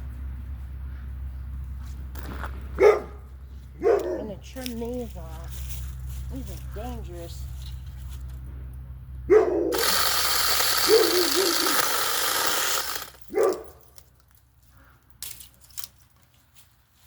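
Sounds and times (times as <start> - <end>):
mini chainsaw cutting branch: 9.7 - 13.6.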